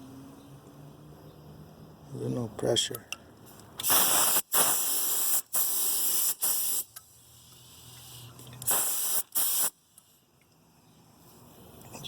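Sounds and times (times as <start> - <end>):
paint spray gun hissing: 3.8 - 9.7.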